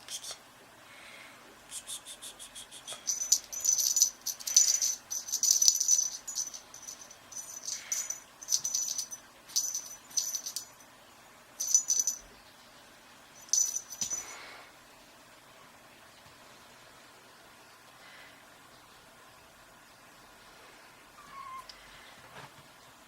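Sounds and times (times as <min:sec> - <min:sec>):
small jingle bell rattling: 0:03.0 - 0:10.8, 0:11.6 - 0:12.3, 0:13.4 - 0:14.5.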